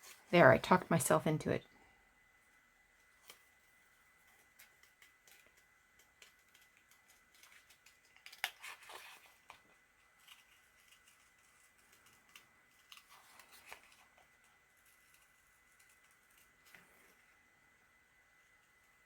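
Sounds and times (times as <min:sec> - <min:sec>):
paper rustling and crinkling: 0:03.0 - 0:17.2.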